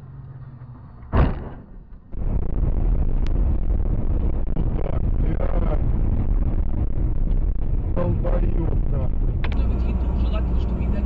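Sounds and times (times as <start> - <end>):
car driving rumble: 0.0 - 11.0
road and wind noise: 0.0 - 11.0
loud bang: 1.1 - 5.2.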